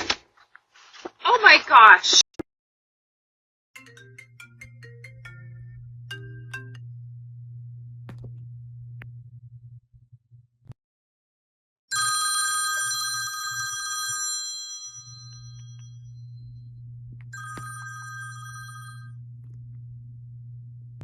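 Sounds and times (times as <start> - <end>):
bell ringing: 3.8 - 6.8, 11.9 - 16.2, 17.3 - 19.1
steady low hum: 3.8 - 10.8, 15.3 - 21.0.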